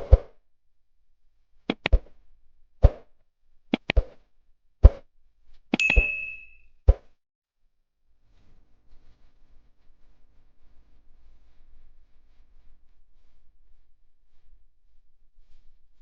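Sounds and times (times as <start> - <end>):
metallic ding: 5.8 - 6.6.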